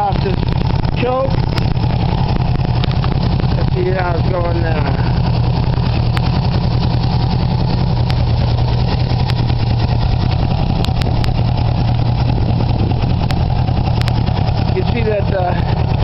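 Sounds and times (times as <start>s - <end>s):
motorcycle engine idling: 0.0s - 16.0s
faint light ticks: 6.1s - 6.3s, 8.0s - 8.2s, 10.8s - 11.4s, 13.2s - 14.2s.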